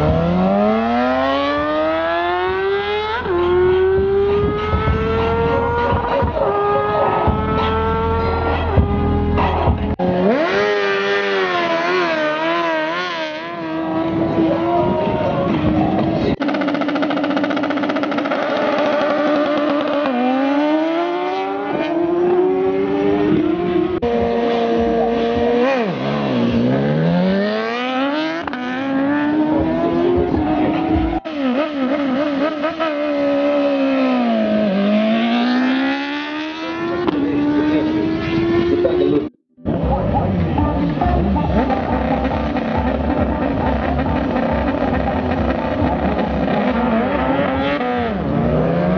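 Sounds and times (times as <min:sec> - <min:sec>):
drag-racing engine revving: 0:00.0 - 0:14.7, 0:15.6 - 0:39.3, 0:40.6 - 0:48.9.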